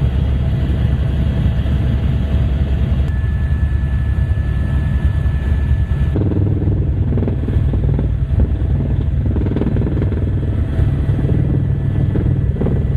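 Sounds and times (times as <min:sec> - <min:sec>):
helicopter engine and rotor: 0:00.0 - 0:12.9
thin high whine: 0:03.0 - 0:08.7.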